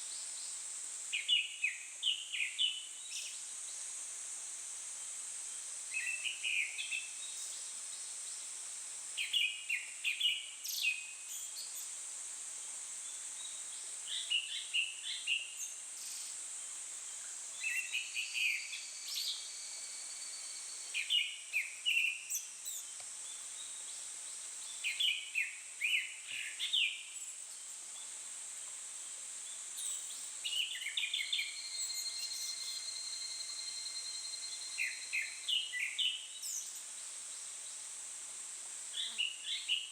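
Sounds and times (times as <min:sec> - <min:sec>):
steady high-pitched hiss: 0:00.0 - 0:39.9
thin level whistle: 0:31.3 - 0:35.1.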